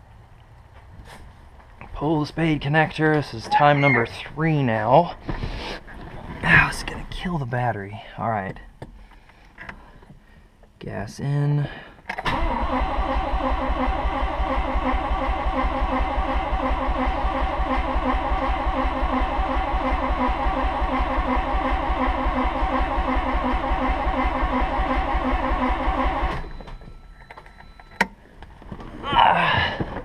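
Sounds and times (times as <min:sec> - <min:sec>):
starter cranking engine: 0:12.2 - 0:26.6.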